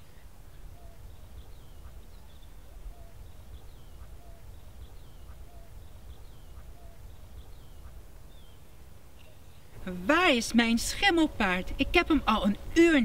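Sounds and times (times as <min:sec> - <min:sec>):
small bird chirps: 0:00.1 - 0:09.8.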